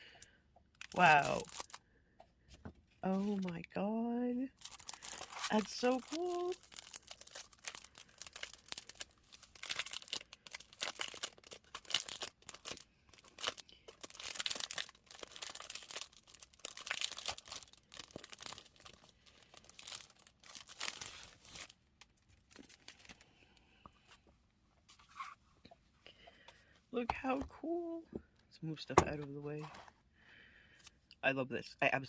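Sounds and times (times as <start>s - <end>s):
packaging crinkling and tearing: 0.8s - 1.8s, 4.5s - 23.3s.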